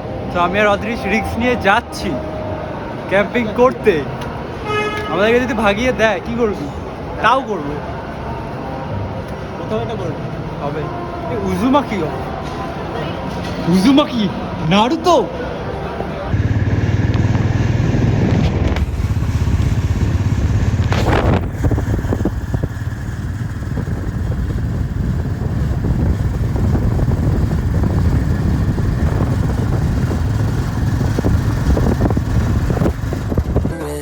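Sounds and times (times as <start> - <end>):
rushing noise: 15.6 - 34.0
loud whoosh: 16.3 - 34.0
motorcycle engine rumbling: 16.3 - 34.0.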